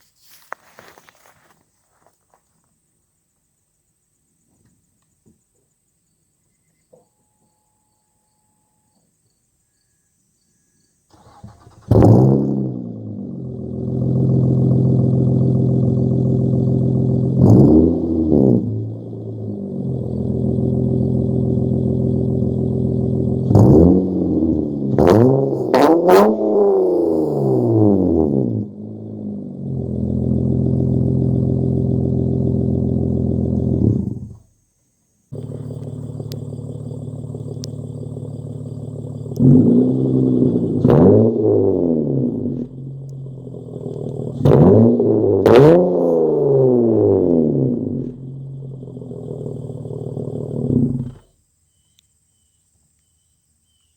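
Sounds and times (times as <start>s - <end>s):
car engine idling and revving: 11.1s - 34.4s, 35.3s - 51.3s.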